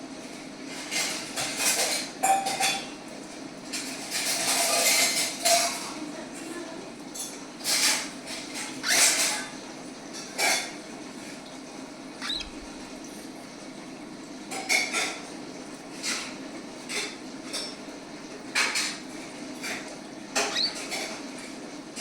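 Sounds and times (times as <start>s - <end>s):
tiny bird squeak: 8.8s - 9.3s, 12.2s - 12.8s, 20.4s - 21.0s.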